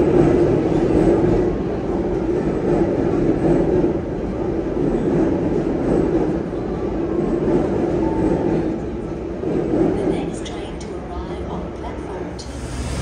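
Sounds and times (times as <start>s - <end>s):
train rumbling past: 0.0s - 13.0s.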